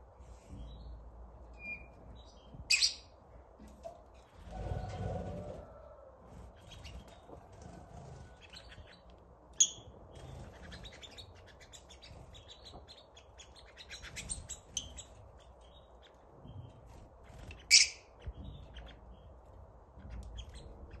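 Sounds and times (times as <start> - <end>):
small birds chirping: 0.3 - 3.3, 4.2 - 21.0
sharp bird calls: 17.3 - 19.3.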